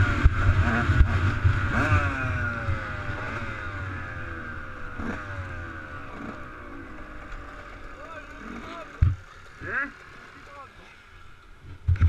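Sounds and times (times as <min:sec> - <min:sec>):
motocross bike engine: 0:00.0 - 0:12.0.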